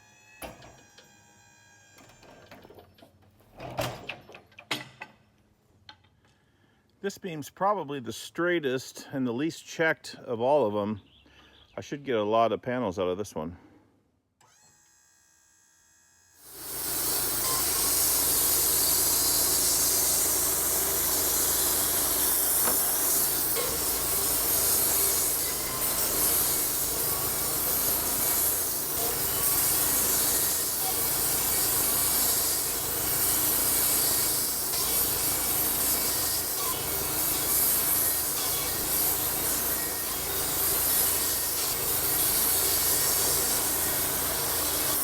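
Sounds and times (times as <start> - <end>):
band saw cutting timber: 16.4 - 45.0.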